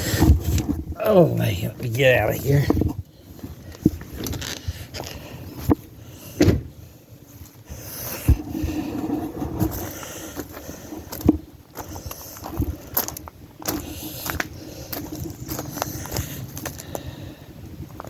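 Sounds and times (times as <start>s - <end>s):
rustling and shuffling: 0.0s - 17.2s
knocks and thumps against vehicle: 6.4s - 6.8s.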